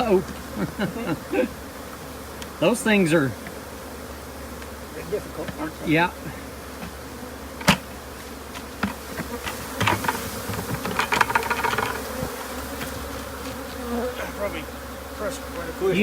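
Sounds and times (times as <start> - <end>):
bees buzzing: 0.0 - 16.0
scattered clicks and knocks: 7.6 - 7.8, 8.6 - 12.9.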